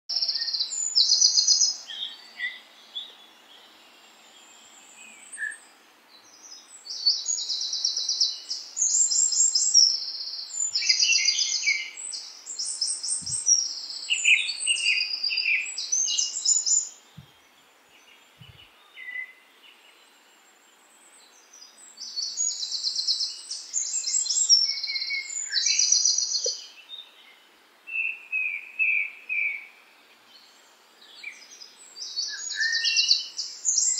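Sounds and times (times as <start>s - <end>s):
songbird trills and chirps: 0.1s - 33.9s.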